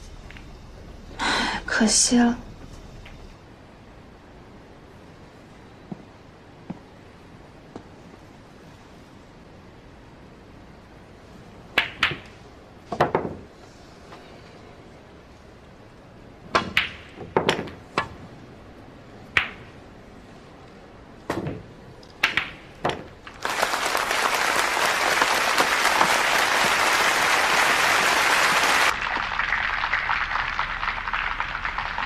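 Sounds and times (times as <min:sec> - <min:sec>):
billiard balls clacking: 0:11.8 - 0:13.5, 0:16.5 - 0:18.2, 0:19.3 - 0:19.8, 0:21.2 - 0:28.9
audience applause: 0:23.3 - 0:32.0.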